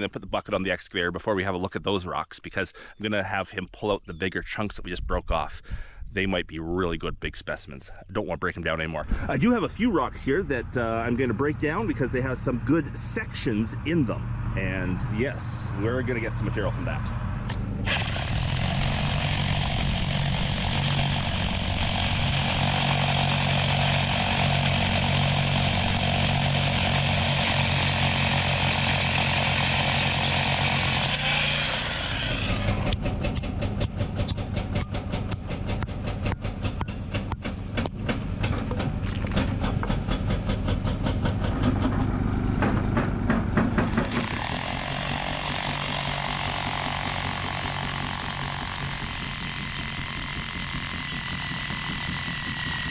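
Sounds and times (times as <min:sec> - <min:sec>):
excavator diesel engine running: 0:16.8 - 0:52.9
hydraulic breaker pounding rock: 0:17.8 - 0:52.9.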